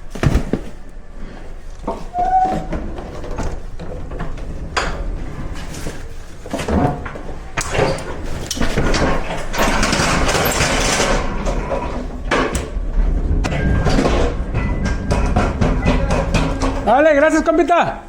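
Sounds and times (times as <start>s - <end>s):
freight knocking and clattering: 0.0s - 0.9s, 1.8s - 18.0s
rushing scraping noise: 8.9s - 17.6s.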